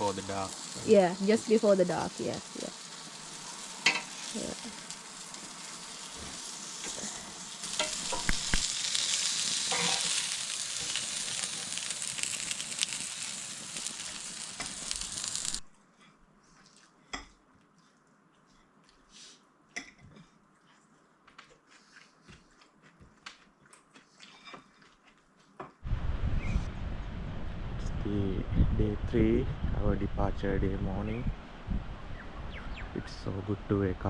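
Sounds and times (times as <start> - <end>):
food sizzling on a hotplate: 0.0 - 15.7.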